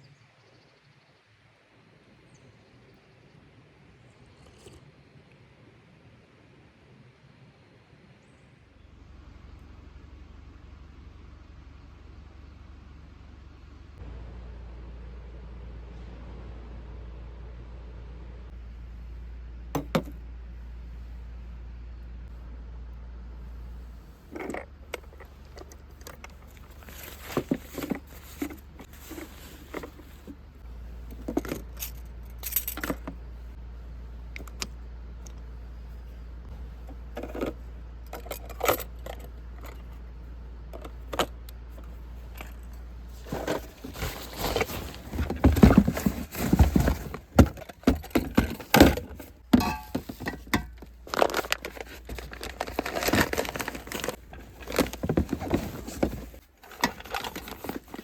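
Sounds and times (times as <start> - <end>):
metal objects clinking: 42.3 - 58.0.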